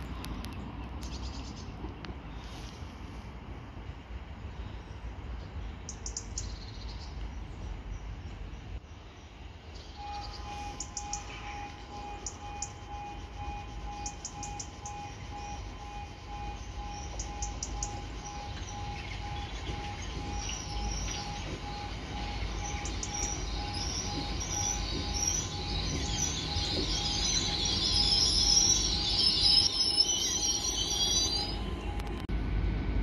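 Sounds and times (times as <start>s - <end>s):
train slowing to a stop: 0.0s - 33.0s
high brake squeal: 9.9s - 32.0s
steady pulsing beep: 9.9s - 32.2s.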